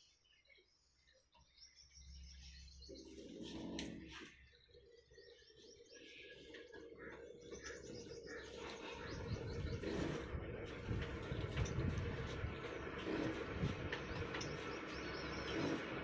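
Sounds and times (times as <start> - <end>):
small birds chirping: 0.0 - 16.0
low uneven rumble: 6.0 - 16.0.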